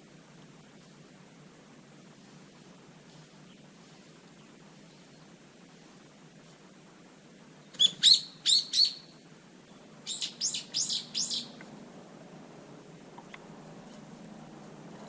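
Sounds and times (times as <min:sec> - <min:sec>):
bird chirping: 0:07.6 - 0:11.6.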